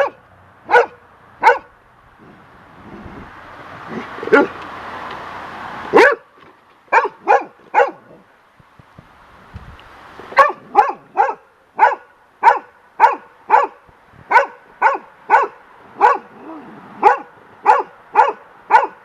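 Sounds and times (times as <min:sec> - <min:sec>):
dog barking: 0:00.0 - 0:01.7, 0:04.3 - 0:04.6, 0:05.9 - 0:06.3, 0:06.9 - 0:08.2, 0:10.4 - 0:19.0.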